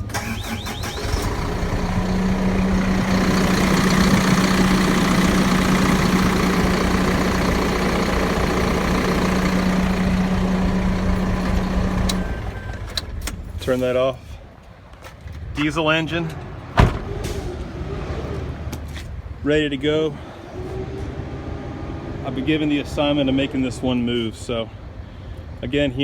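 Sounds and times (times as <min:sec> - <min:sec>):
truck engine idling: 0:00.0 - 0:14.4.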